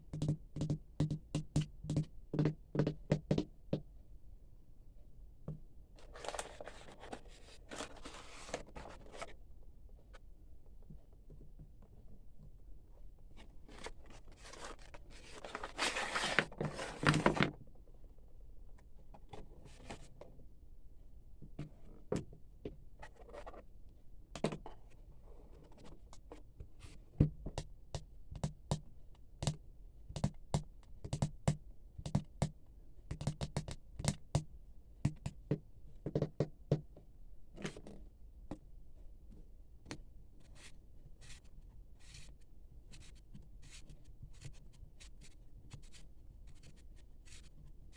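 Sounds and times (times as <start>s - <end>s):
packaging scraping and rustling: 6.0s - 9.4s, 13.7s - 17.5s.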